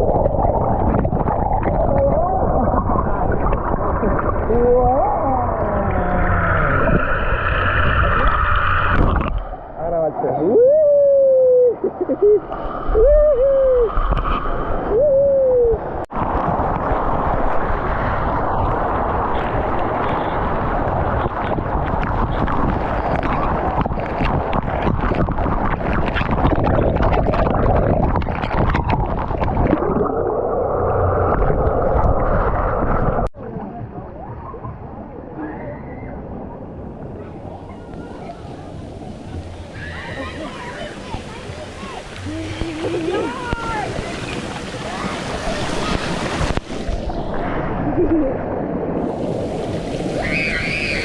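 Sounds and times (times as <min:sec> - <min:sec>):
water rushing and splashing: 0:00.0 - 0:34.1, 0:36.2 - 0:51.0
quiet water wash: 0:00.0 - 0:51.0
person yelling woo: 0:10.5 - 0:11.8, 0:13.0 - 0:13.9, 0:14.9 - 0:15.8.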